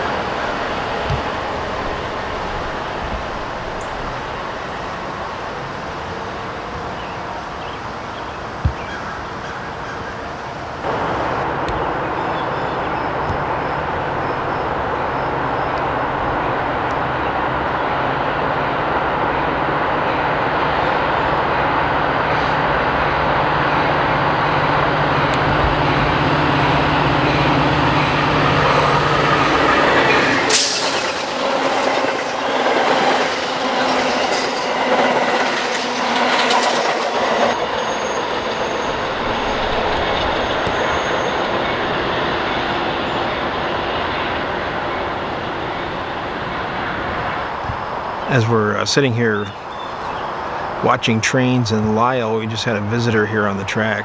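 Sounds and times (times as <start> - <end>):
train engine hum: 0.0 - 54.0
wheels clattering over rail joints: 11.4 - 48.3
sudden sharp burst: 28.7 - 35.9.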